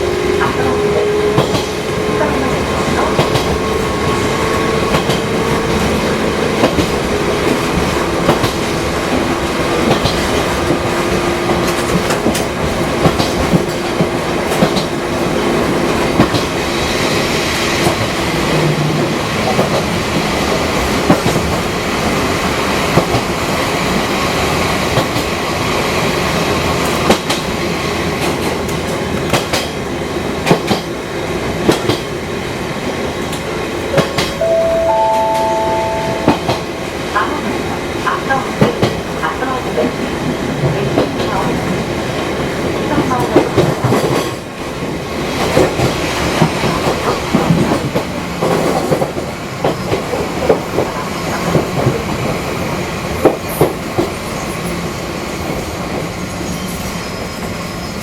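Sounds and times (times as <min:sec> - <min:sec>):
train running noise: 0:00.0 - 0:58.0
two-pitch tone: 0:33.9 - 0:37.2.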